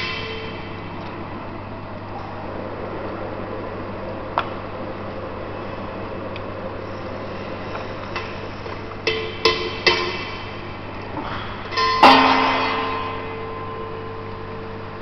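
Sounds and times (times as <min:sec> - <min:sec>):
low hum: 0:00.0 - 0:15.0
metallic knocks ringing: 0:09.0 - 0:14.3.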